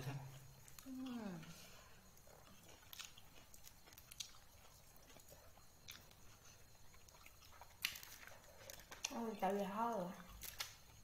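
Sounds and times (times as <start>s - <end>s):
mouth clicks and smacks chewing: 2.2s - 9.2s.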